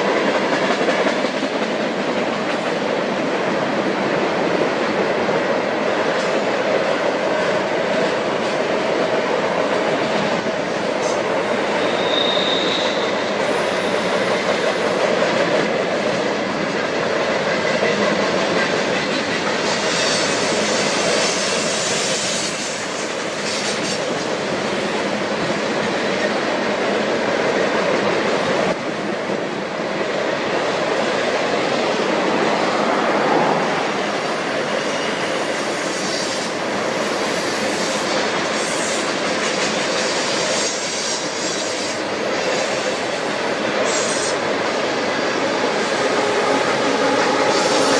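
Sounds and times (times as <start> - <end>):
freight train cars rolling past: 0.0 - 47.9
wheels clickety-clack: 9.6 - 27.0
high wheel squeal: 11.4 - 14.5, 46.0 - 47.9.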